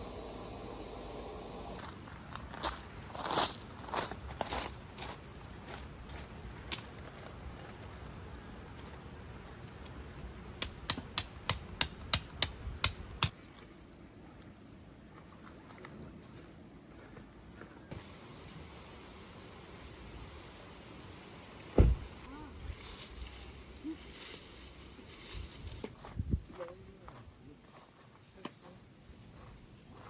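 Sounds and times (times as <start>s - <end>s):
insects chirring: 0.0s - 30.0s
sharp knocks: 10.6s - 13.3s, 21.8s - 22.2s.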